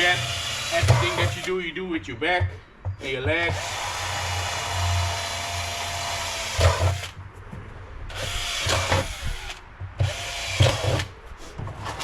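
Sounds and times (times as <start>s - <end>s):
power drill running: 0.0s - 1.5s, 3.5s - 7.2s, 8.1s - 11.1s.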